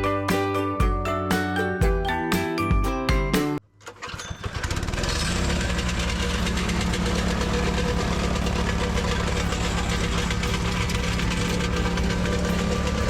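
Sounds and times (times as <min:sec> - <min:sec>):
excavator diesel engine running: 0:04.6 - 0:13.0.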